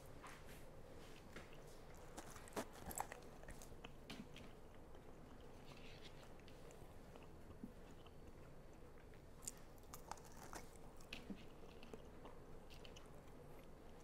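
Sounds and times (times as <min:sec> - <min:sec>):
person chewing crispy food: 0:01.1 - 0:14.0.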